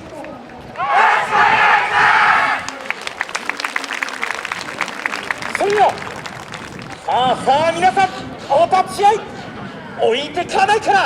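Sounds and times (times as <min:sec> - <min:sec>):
sharp claps: 0:02.4 - 0:08.2.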